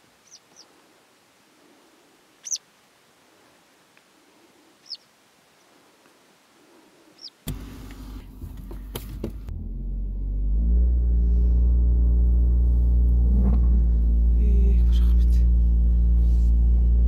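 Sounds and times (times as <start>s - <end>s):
bird chirp: 0.1s - 0.8s, 2.4s - 2.7s, 4.8s - 5.8s, 7.1s - 7.4s
car engine running: 7.4s - 17.0s.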